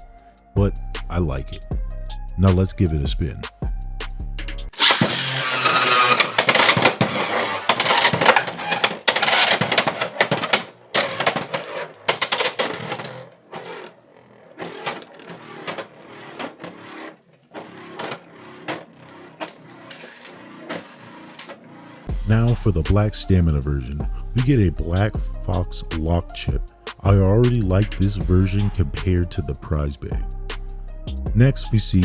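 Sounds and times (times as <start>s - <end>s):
spinning top clattering in stadium: 4.8s - 22.1s.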